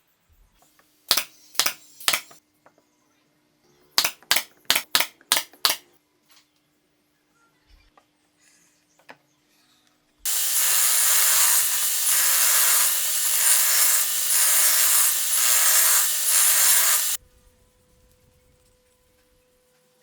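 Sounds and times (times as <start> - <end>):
hand sawing or sanding wood: 10.3 - 17.2.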